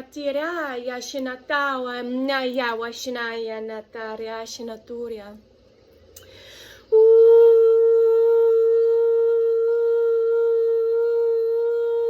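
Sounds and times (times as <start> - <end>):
woman singing long note: 6.9 - 12.0.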